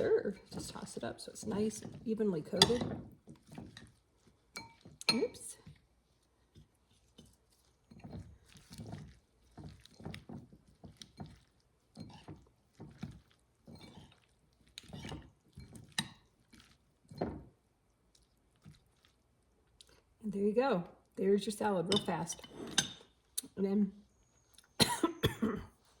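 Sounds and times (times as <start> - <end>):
wet swishing of salad tossing: 0.0 - 20.2.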